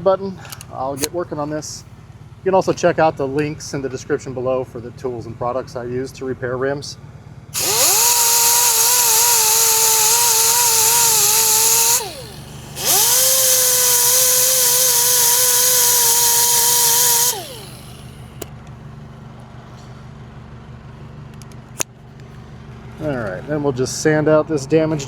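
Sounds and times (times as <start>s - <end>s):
grinder whining on metal rim: 7.6s - 18.6s.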